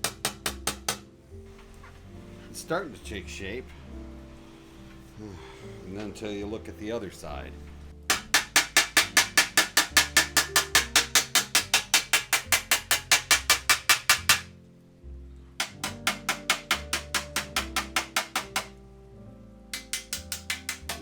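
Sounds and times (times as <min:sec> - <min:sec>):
hammer tapping on brass: 0:08.1 - 0:14.5, 0:15.6 - 0:18.8.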